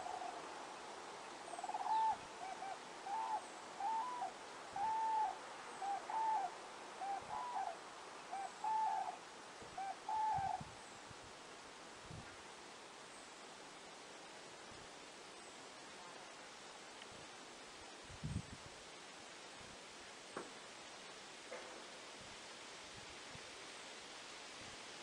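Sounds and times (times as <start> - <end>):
bird calling: 0.0 - 0.4, 1.4 - 9.2, 9.8 - 10.6
steady soft hiss: 0.0 - 25.0.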